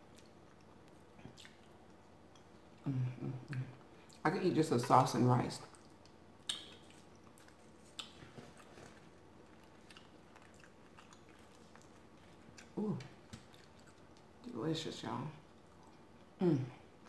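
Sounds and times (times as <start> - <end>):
chewing and mouth sounds: 0.0 - 2.6, 5.6 - 14.4
person humming: 2.8 - 3.7.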